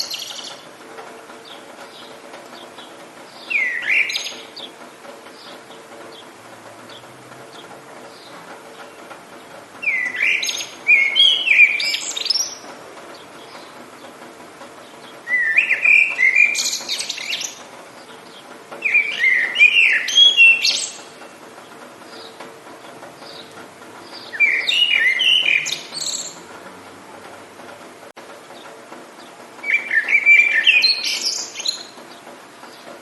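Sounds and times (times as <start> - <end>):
songbird warbling: 0.0 - 0.6, 1.4 - 6.3, 9.8 - 12.6, 14.8 - 21.3, 23.2 - 26.4, 29.6 - 32.8.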